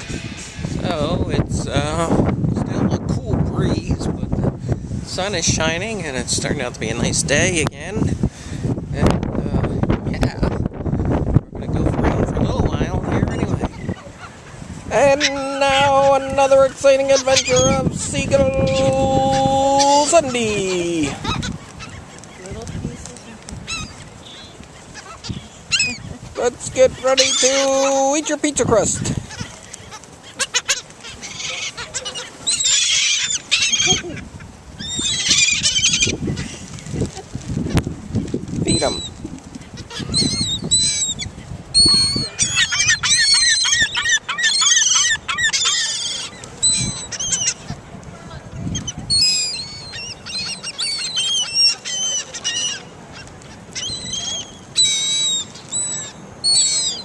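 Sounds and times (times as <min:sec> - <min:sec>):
seagulls squealing: 0:00.0 - 0:01.2, 0:13.1 - 0:23.0, 0:23.6 - 0:37.8, 0:38.7 - 0:57.0
gulls calling: 0:00.0 - 0:02.3, 0:12.0 - 0:57.0.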